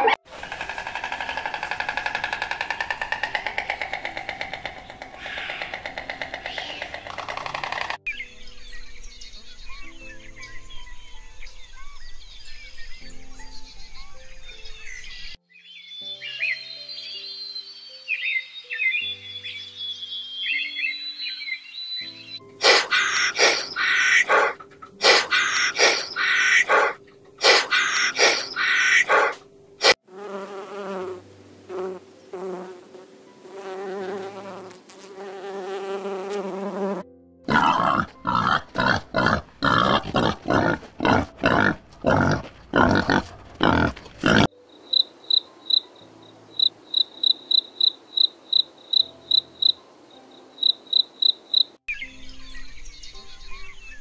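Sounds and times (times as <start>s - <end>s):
rasping insect pulses: 0.0s - 8.1s, 22.6s - 30.0s, 37.5s - 45.9s
bumblebee buzzing: 22.6s - 44.5s
crickets chirping: 44.6s - 51.8s.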